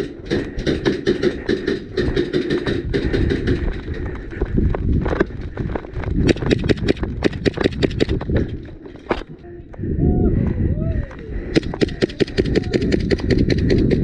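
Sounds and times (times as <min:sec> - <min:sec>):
gear rattling and clattering: 0:00.0 - 0:09.3
quick footsteps: 0:00.0 - 0:09.3
low rumble of movement: 0:00.0 - 0:14.0.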